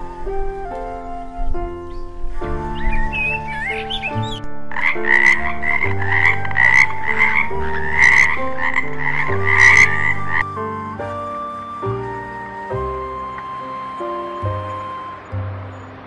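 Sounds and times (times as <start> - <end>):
soft background music: 0.0 - 16.0
frog croaking: 3.6 - 10.4.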